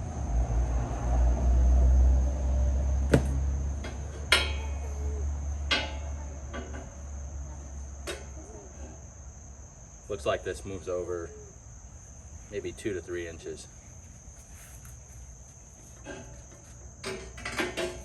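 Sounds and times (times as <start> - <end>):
crickets chirring: 0.0 - 18.0
metal clanks and knocks: 3.1 - 4.9, 5.6 - 7.0, 16.0 - 18.0.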